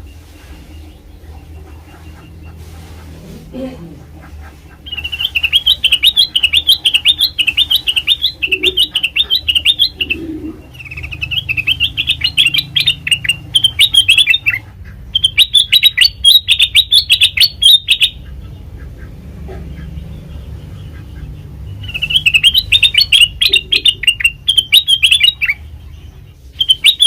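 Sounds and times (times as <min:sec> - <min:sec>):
bulbul singing warbling chirps: 0:04.8 - 0:18.7, 0:19.8 - 0:27.0.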